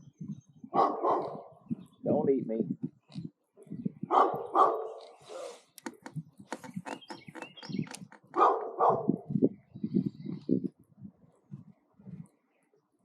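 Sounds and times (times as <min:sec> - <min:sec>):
dog barking: 0:00.7 - 0:01.5, 0:04.1 - 0:05.6, 0:08.4 - 0:09.3.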